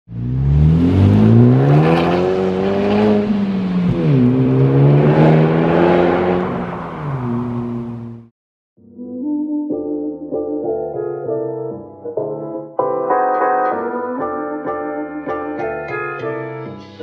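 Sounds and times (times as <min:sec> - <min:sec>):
car engine accelerating: 0:00.1 - 0:08.3.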